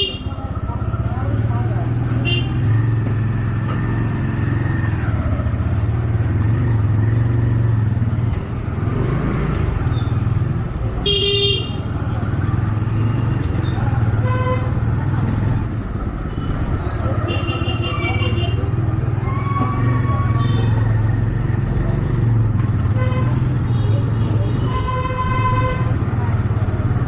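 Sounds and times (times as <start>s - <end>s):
road and wind noise: 0.0s - 27.0s
vehicle horn: 2.2s - 2.6s, 11.0s - 11.9s, 17.3s - 18.6s, 22.9s - 25.9s.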